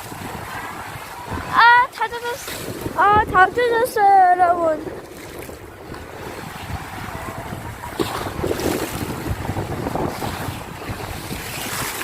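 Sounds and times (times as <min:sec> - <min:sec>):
waves breaking on a beach: 0:00.0 - 0:12.0
wind buffeting microphone: 0:00.0 - 0:12.0.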